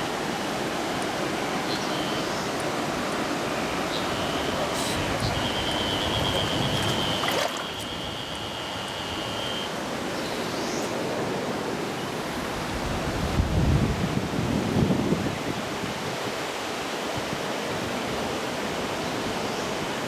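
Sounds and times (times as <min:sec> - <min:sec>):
stream rushing over rocks: 0:00.0 - 0:20.0
thin high steady tone: 0:03.3 - 0:10.8.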